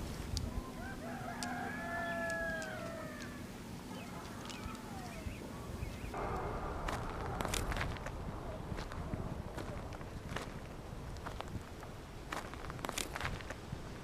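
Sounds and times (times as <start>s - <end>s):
rooster crowing: 0.5s - 3.5s
faint clicks: 2.2s - 3.4s.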